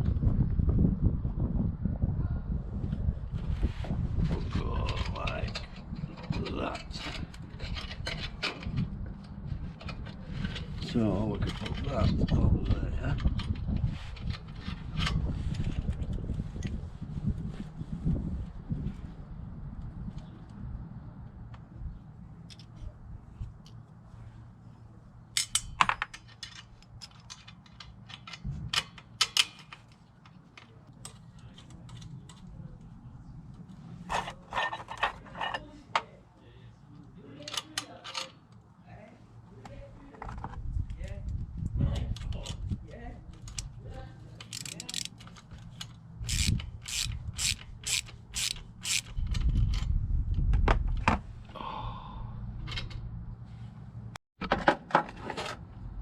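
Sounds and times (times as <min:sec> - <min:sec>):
ratchet wrench clicking: 0:44.4 - 0:45.2, 0:46.2 - 0:49.2.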